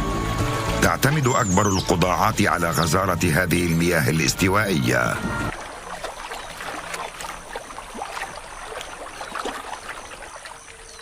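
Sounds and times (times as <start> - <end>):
water splashing and trickling: 0.9 - 11.0
faint high chirp: 8.4 - 11.0.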